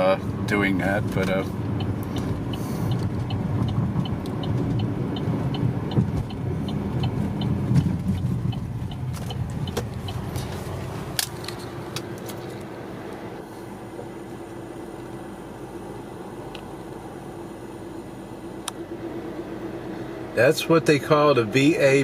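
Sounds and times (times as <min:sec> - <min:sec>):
car road and engine noise: 0:00.0 - 0:22.0
turn signal ticking: 0:00.3 - 0:13.2, 0:13.8 - 0:22.0.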